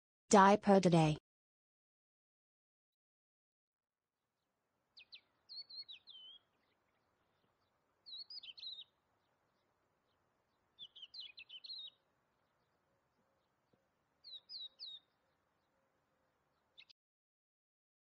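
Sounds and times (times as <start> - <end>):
faint outdoor hiss: 4.5 - 16.9
small bird chirping and trilling: 4.9 - 12.7, 14.2 - 15.7, 16.5 - 16.9.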